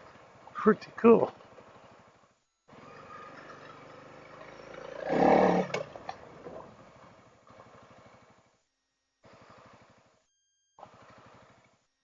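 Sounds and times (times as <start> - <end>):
motorcycle engine running: 1.3 - 8.6, 9.2 - 10.2, 10.8 - 11.9.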